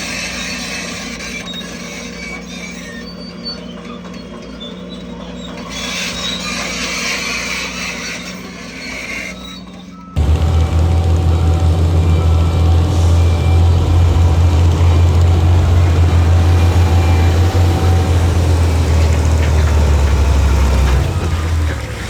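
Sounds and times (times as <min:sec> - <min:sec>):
heavy diesel engine droning: 0:10.2 - 0:22.0.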